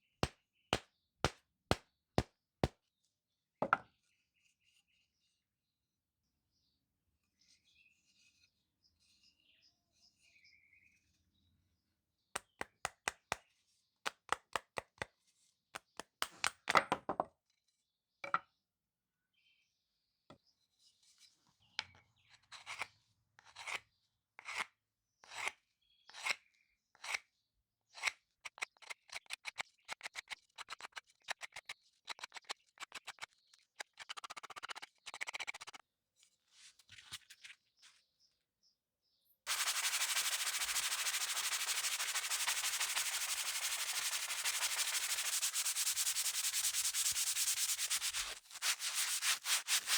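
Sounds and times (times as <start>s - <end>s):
short rubbing strokes: 39.5s - 49.9s
steady sanding noise: 39.5s - 49.9s.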